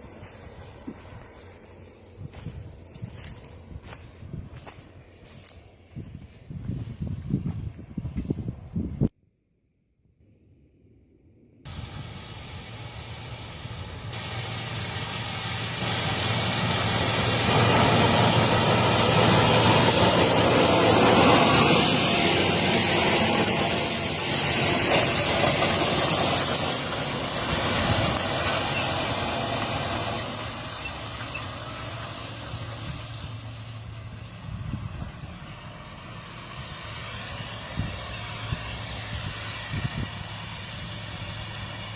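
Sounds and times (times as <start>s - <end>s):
tractor engine running hard: 11.7s - 41.9s.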